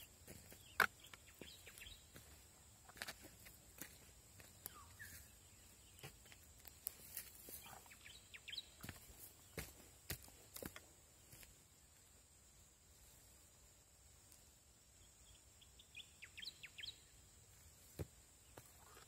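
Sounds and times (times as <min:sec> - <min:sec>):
bird chirps: 0:00.0 - 0:02.4, 0:04.5 - 0:06.5, 0:07.4 - 0:09.6, 0:15.2 - 0:17.2
faint high-pitched hiss: 0:00.0 - 0:19.0.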